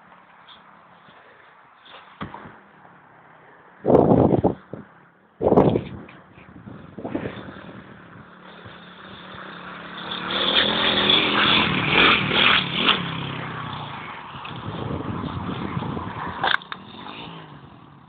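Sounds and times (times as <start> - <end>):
motorbike engine revving: 6.6 - 18.0.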